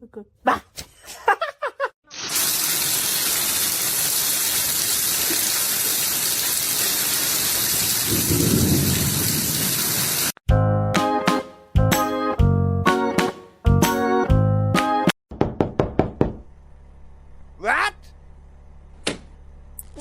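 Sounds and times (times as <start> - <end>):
heavy rain hissing: 2.1 - 10.4.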